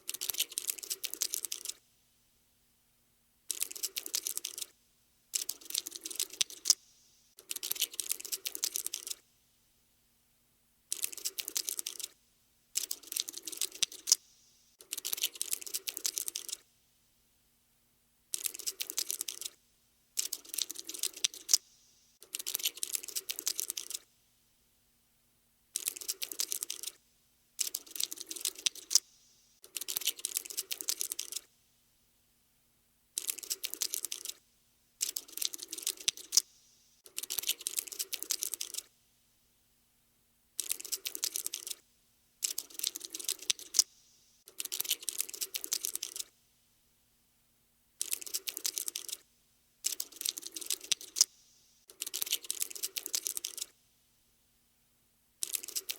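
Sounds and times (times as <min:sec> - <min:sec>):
insect skittering clicks: 0:00.1 - 0:01.8, 0:03.5 - 0:04.7, 0:05.4 - 0:06.8, 0:07.4 - 0:09.2, 0:10.9 - 0:12.2, 0:12.8 - 0:14.2, 0:14.8 - 0:16.6, 0:18.3 - 0:19.6, 0:20.2 - 0:21.6, 0:22.2 - 0:24.0, 0:25.8 - 0:27.0, 0:27.6 - 0:31.5, 0:33.2 - 0:34.4, 0:35.0 - 0:38.9, 0:40.6 - 0:41.8, 0:42.4 - 0:46.3, 0:48.0 - 0:49.2, 0:49.8 - 0:53.7, 0:55.4 - 0:55.9.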